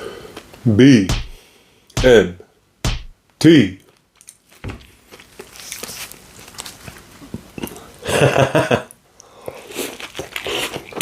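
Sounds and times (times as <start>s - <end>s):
chewing sandwich: 4.4s - 8.0s, 9.2s - 11.0s.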